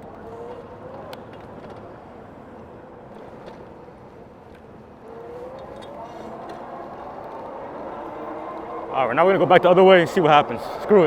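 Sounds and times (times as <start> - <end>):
road noise: 0.0 - 11.0
electric motor whine: 5.0 - 11.0.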